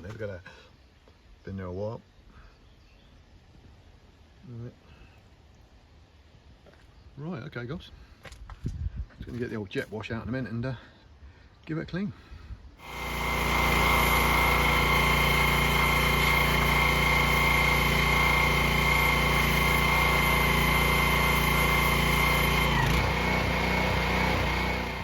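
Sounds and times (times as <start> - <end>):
pressure washer whine: 12.8 - 25.0.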